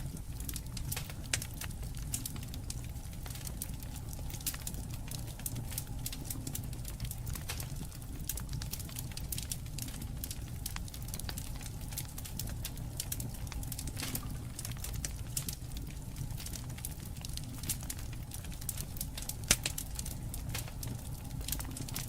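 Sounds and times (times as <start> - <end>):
low steady rumble: 0.0 - 22.0
wood fire crackling: 0.0 - 22.0.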